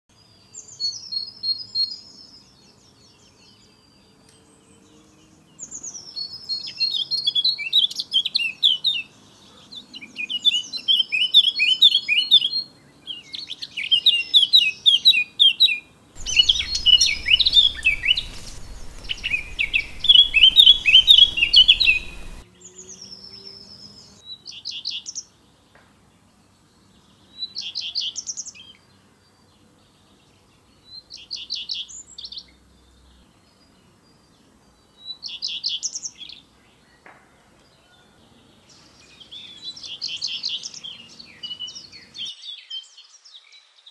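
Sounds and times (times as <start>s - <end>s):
songbird singing: 0.1s - 25.8s, 37.7s - 43.9s
steady hiss: 16.2s - 22.4s.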